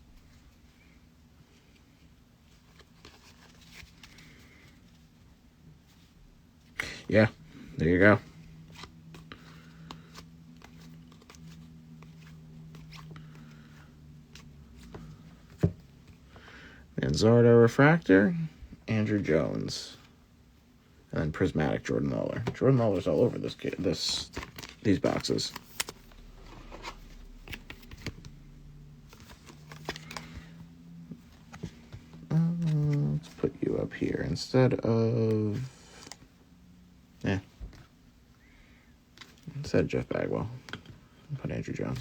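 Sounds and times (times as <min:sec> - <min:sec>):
low steady hum: 0:00.0 - 0:42.0
cards clicking and rustling: 0:08.7 - 0:15.8, 0:22.3 - 0:28.4, 0:29.1 - 0:33.5.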